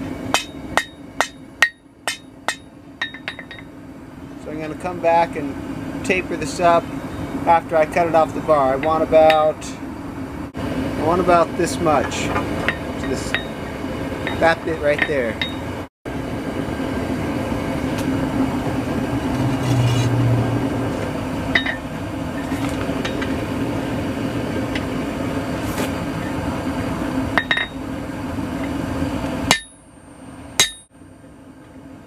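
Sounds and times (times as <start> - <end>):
forge roaring: 15.7 - 29.5
hammer clinking on steel: 30.6 - 30.9.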